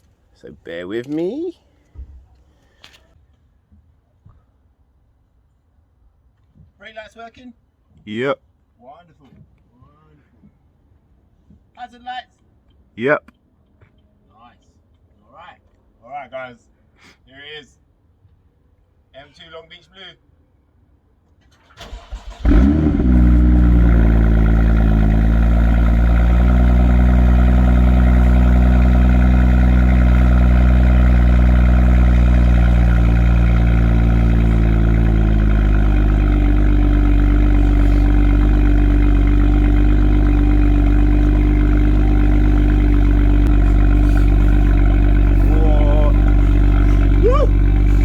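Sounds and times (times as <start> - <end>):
car engine starting and idling: 21.4 - 48.0.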